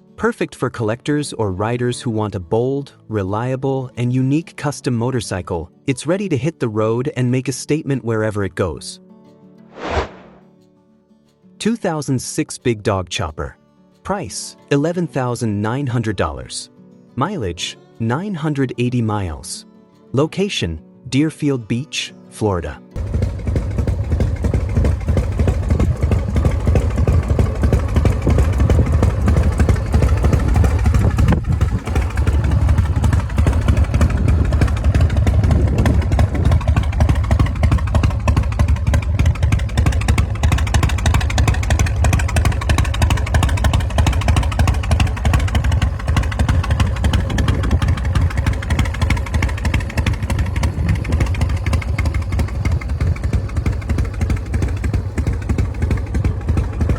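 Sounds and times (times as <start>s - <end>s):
motorcycle engine running: 23.0s - 56.9s.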